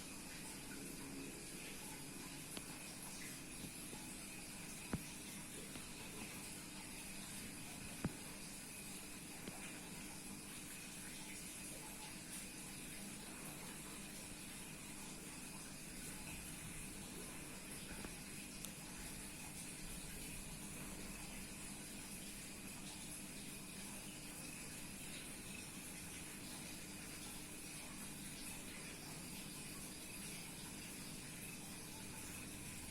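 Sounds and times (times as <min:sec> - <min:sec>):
faint steady hiss: 0:00.0 - 0:32.9.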